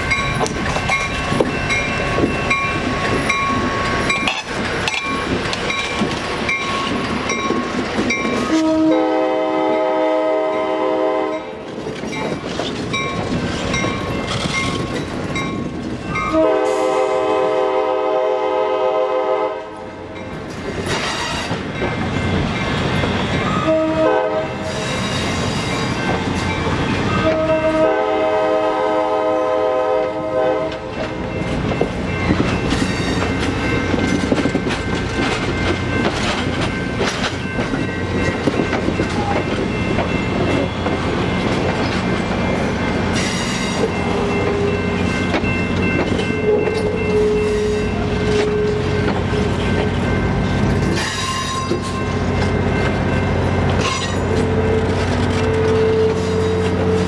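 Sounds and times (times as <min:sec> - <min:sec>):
train wheels clickety-clack: 0:00.0 - 0:09.1, 0:11.3 - 0:17.4, 0:20.2 - 0:28.0, 0:30.0 - 0:57.0
train air horn blasts: 0:08.4 - 0:11.7, 0:16.2 - 0:20.0, 0:23.6 - 0:25.8, 0:27.1 - 0:30.9, 0:46.4 - 0:49.6.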